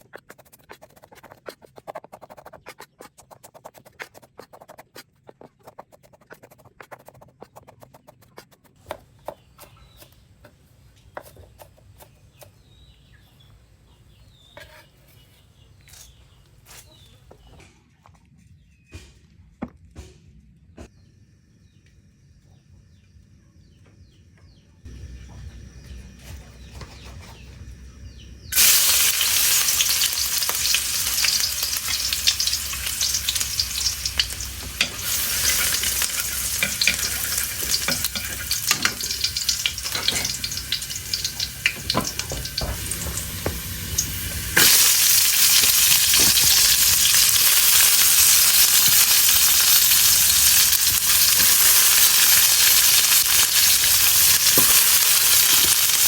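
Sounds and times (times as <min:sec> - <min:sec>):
stirring clicks and scrapes: 0:00.0 - 0:08.8, 0:29.1 - 0:56.0
food sizzling in hot oil: 0:28.5 - 0:56.0.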